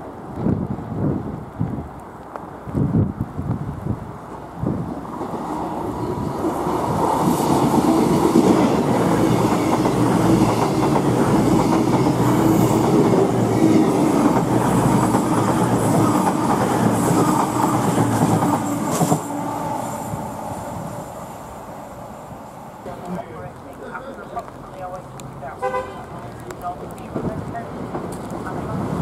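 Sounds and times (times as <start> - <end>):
train engine drone: 4.2 - 23.3.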